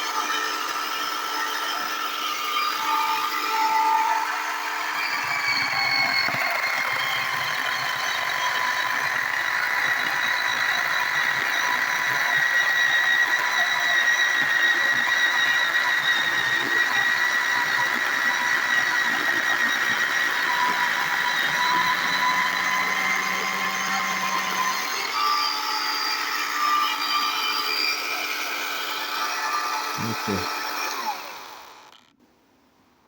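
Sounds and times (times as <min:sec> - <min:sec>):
electric chainsaw cutting wood: 0:00.0 - 0:32.1.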